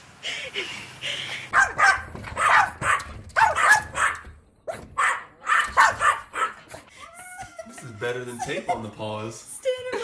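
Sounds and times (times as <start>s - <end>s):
dog barking: 1.5s - 6.8s.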